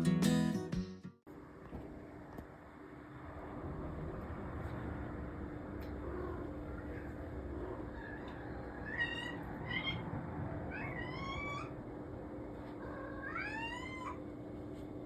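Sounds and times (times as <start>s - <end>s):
cat meowing: 6.0s - 11.8s, 12.8s - 14.2s.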